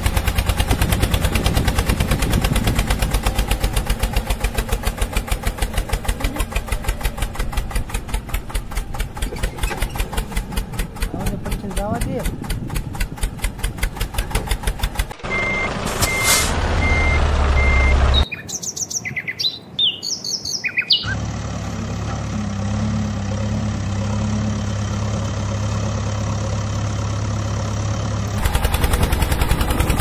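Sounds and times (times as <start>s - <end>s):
engine running: 0.0s - 18.3s, 21.0s - 30.0s
engine with rapid firing rhythm: 0.0s - 18.3s, 21.0s - 30.0s
short beeps: 15.2s - 18.3s
birds chirping: 16.9s - 21.2s.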